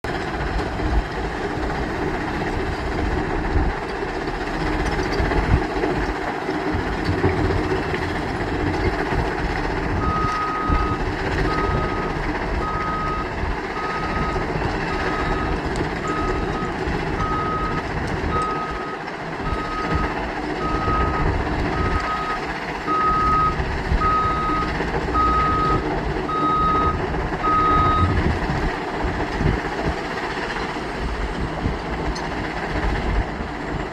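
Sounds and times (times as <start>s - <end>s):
heavy machine engine running: 0.0s - 33.9s
reversing alarm beeping: 9.9s - 28.2s.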